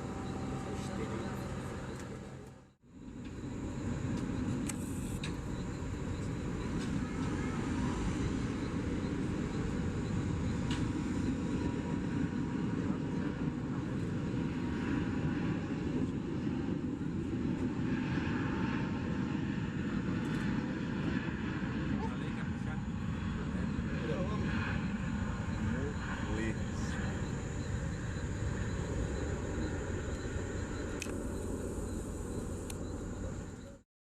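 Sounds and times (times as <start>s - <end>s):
jet engines roaring at takeoff: 0.0s - 33.8s.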